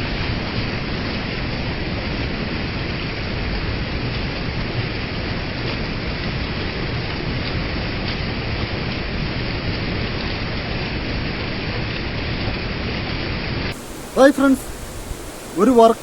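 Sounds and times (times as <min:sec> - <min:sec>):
waterfall rushing: 0:13.7 - 0:16.0.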